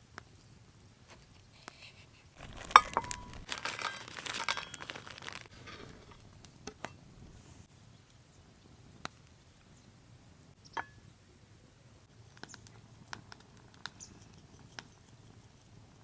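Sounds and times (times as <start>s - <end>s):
plastic packaging crinkling and tearing: 2.4s - 6.3s
isolated ticks: 12.2s - 15.8s.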